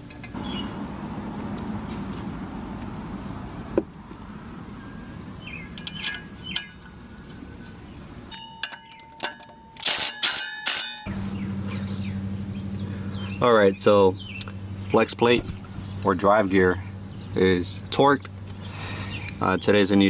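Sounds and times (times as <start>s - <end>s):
metal tools clinking on steel: 5.7s - 6.9s, 8.3s - 11.1s.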